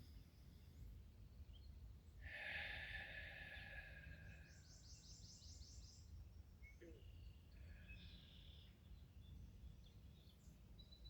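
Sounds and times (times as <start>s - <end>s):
soft breathy sound: 2.2s - 5.6s.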